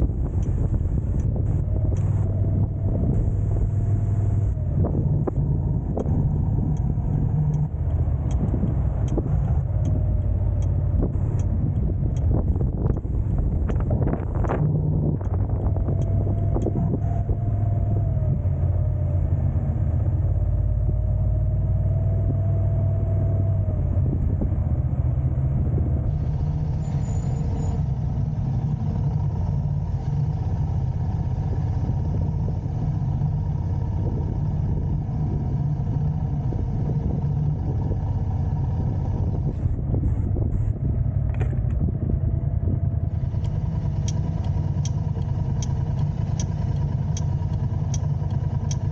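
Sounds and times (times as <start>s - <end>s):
car road and engine rumble: 0.0s - 48.9s.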